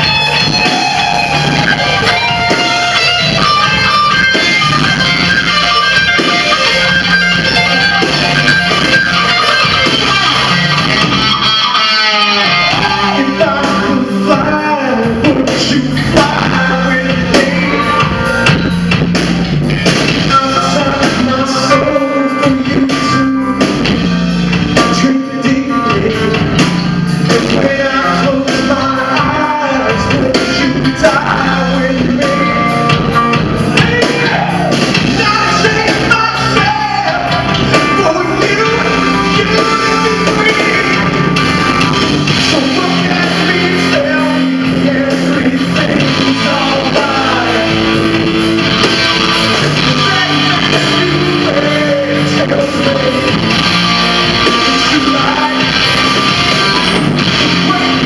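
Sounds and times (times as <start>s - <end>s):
person singing: 0.0s - 19.5s, 20.2s - 23.8s, 24.7s - 58.0s
electric guitar: 0.0s - 58.0s
live rock band: 0.0s - 58.0s.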